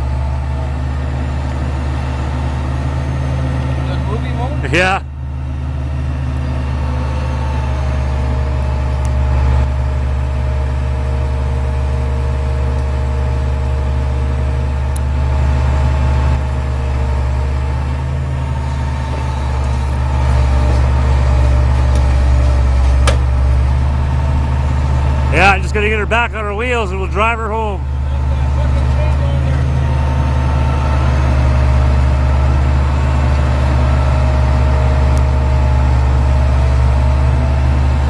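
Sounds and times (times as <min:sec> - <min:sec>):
large vehicle engine running: 0:00.0 - 0:38.0.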